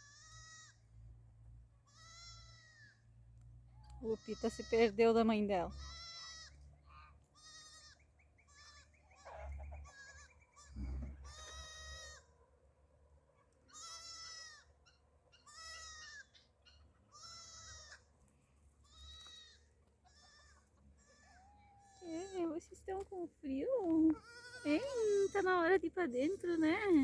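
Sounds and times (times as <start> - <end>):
lamb bleating: 1.9 - 2.9, 5.7 - 12.3, 13.7 - 14.7, 15.4 - 16.4, 17.1 - 18.1, 18.9 - 22.4, 23.8 - 25.7.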